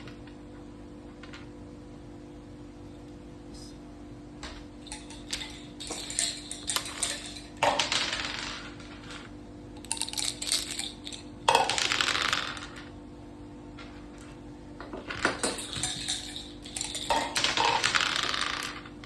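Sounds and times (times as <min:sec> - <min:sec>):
dice and checkers clattering: 0:04.8 - 0:12.9, 0:14.9 - 0:19.0.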